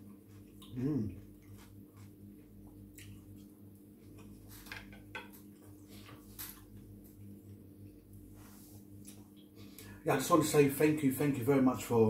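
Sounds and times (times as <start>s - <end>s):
man chewing with wet clicks: 0.0s - 4.5s, 8.9s - 9.6s
steady low hum: 0.0s - 12.0s.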